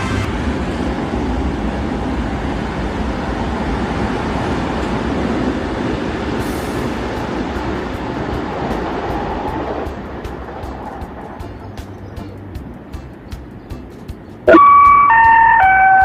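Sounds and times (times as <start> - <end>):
train running on track: 0.0 - 16.0
brief hiss: 6.4 - 7.0.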